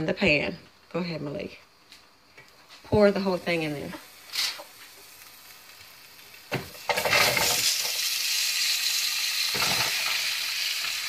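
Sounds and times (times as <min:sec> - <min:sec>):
vegetables sizzling in butter: 0:02.8 - 0:11.0.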